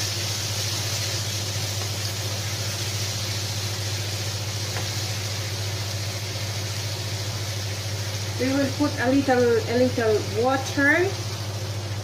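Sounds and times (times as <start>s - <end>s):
tomatoes sizzling in a skillet: 0.0s - 12.0s.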